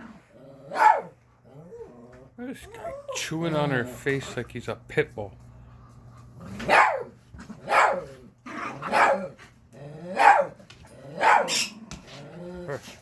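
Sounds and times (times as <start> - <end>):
small dog growly barking: 0.0 - 2.2, 6.4 - 12.8.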